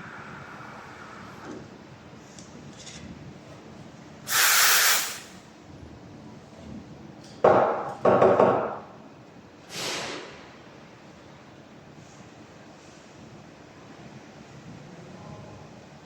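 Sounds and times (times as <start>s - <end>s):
steam wand hissing: 4.3s - 5.4s.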